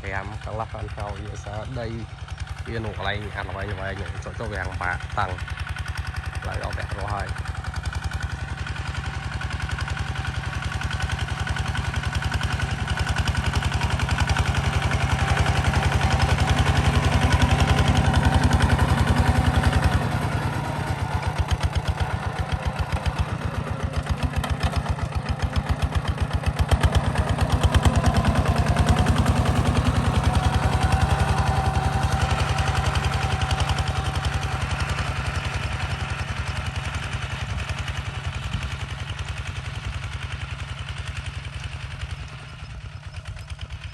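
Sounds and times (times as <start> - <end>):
diesel tractor engine running: 0.0 - 43.9.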